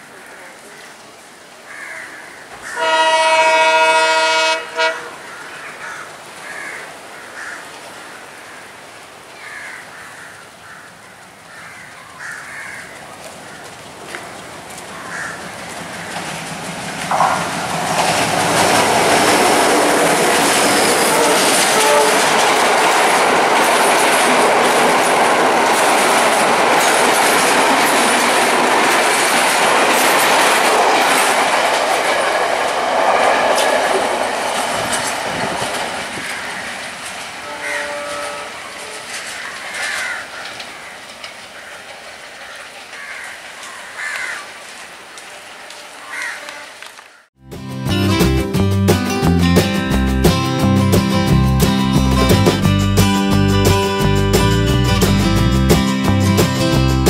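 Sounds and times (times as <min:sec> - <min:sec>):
train rumbling past: 0:02.6 - 0:06.4, 0:13.2 - 0:46.9
wheel clatter over rail joints: 0:13.2 - 0:43.7.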